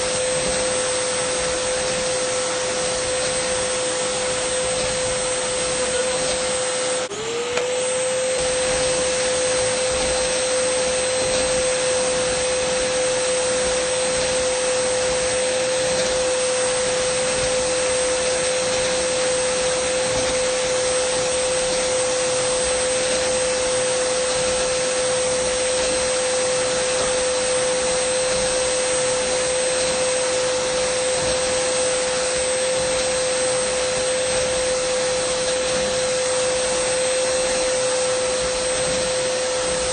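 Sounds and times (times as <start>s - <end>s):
vacuum cleaner click: 0.0s - 39.9s
vacuum cleaner whine: 0.0s - 39.9s.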